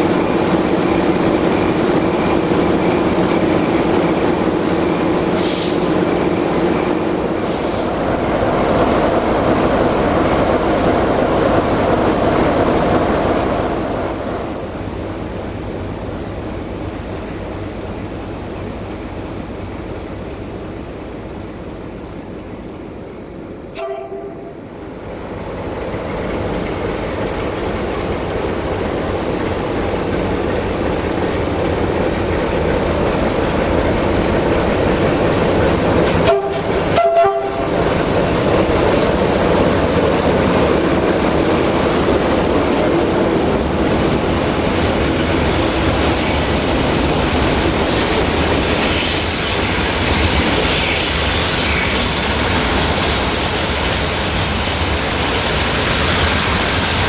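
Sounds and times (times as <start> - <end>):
train wheels rumbling: 0.0 - 57.0
high-pitched wheel squeal: 48.8 - 49.8, 50.6 - 52.5.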